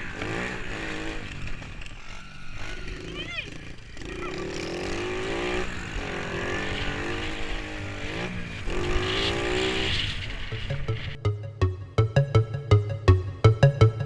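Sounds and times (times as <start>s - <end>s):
electronic music beat: 10.5s - 14.0s.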